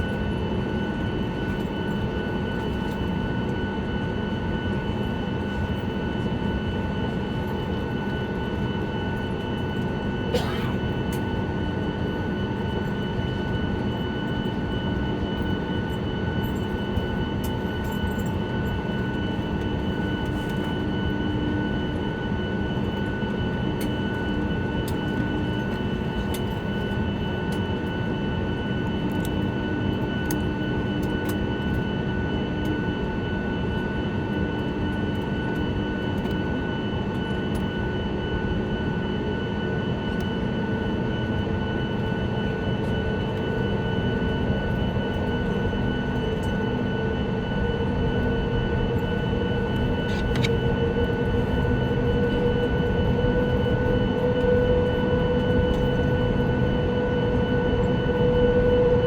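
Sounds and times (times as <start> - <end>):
aircraft cabin hum: 7.0 - 28.0, 41.3 - 59.0.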